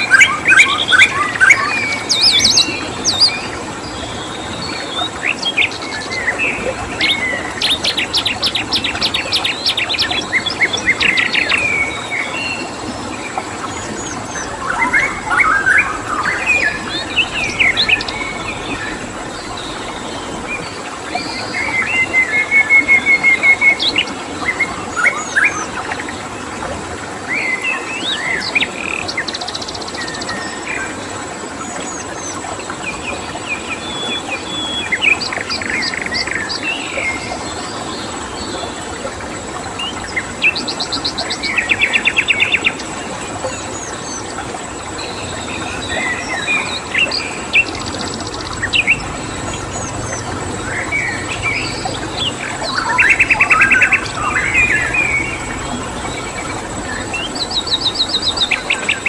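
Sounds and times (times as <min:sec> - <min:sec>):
birds calling and chirping: 0:00.0 - 0:26.6, 0:28.6 - 0:32.6, 0:41.4 - 0:44.4, 0:45.0 - 0:59.0
stream water flowing: 0:00.0 - 0:59.0
high insect trill: 0:48.4 - 0:59.0.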